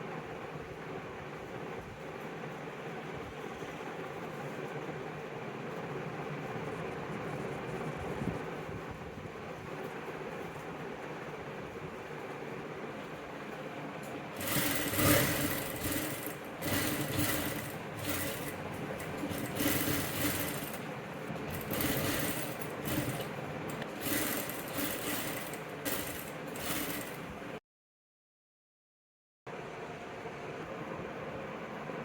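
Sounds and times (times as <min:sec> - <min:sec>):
sewing machine stitching: 0:14.0 - 0:27.6.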